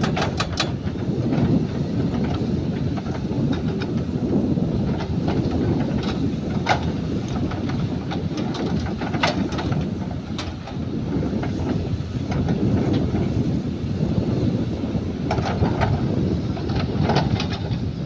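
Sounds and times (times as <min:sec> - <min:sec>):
sharp knocks and clanks: 0:00.0 - 0:01.0
heavy machinery engine rumbling: 0:00.0 - 0:18.0.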